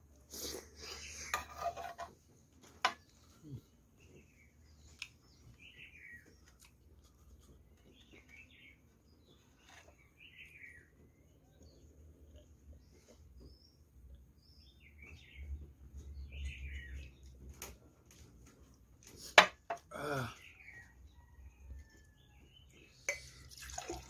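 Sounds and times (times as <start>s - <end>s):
bird chirping: 3.0s - 17.6s.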